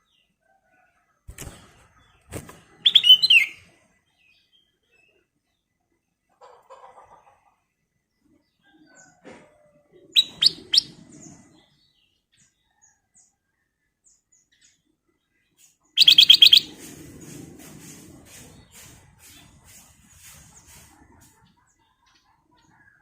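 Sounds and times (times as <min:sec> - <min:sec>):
rapid bird notes: 0:02.2 - 0:03.6, 0:16.0 - 0:17.5
faint bird chirps: 0:10.0 - 0:16.7.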